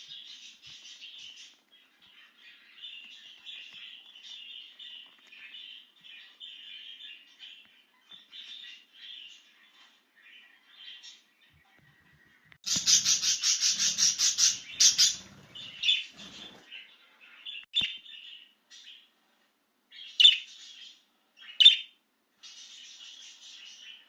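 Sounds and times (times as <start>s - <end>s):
budgerigar chirping: 12.6s - 16.1s.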